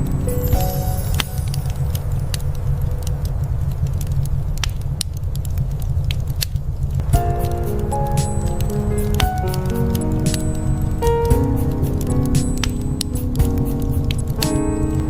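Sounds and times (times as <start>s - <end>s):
soft instrumental music: 0.0s - 3.2s, 7.0s - 15.0s.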